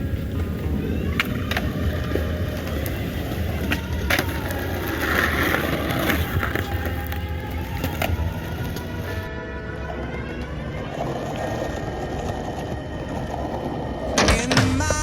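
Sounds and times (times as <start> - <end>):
skateboard clacks: 0.0 - 9.3
skateboard wheels rolling on pavement: 0.0 - 15.0.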